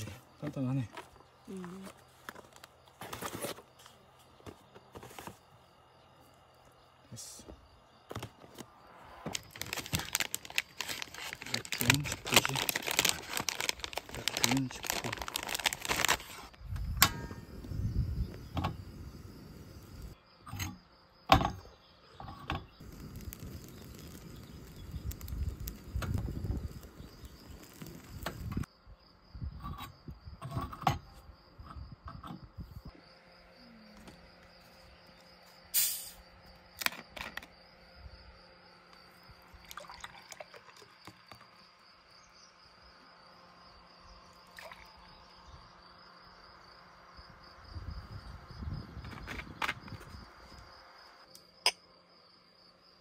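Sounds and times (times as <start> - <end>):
insects chirping: 0.0 - 53.0
plastic snack bag rustling: 9.3 - 16.6.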